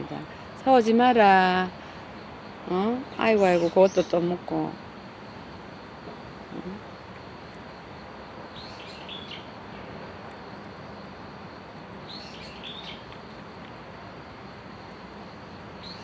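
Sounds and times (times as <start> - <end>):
outdoor background hiss: 0.0 - 16.0
songbird chirping: 2.5 - 11.1, 12.0 - 13.8, 15.8 - 16.0.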